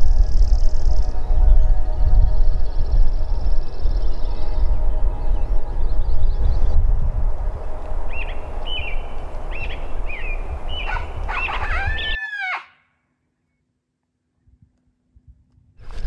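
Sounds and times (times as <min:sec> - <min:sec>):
steady low rumble: 0:00.0 - 0:12.2
wild birds chirping: 0:00.0 - 0:12.8.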